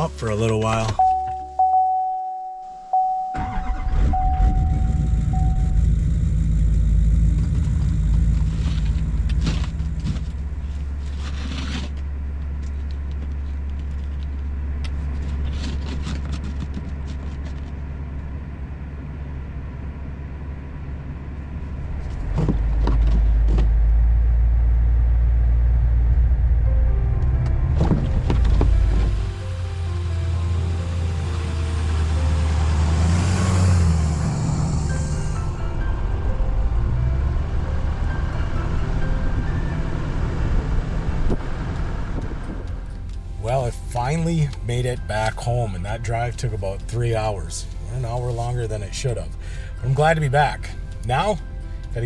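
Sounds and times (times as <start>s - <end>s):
in-cab warning chime: 0.0s - 6.0s, 43.4s - 52.0s
pickup truck engine idling: 41.5s - 52.0s.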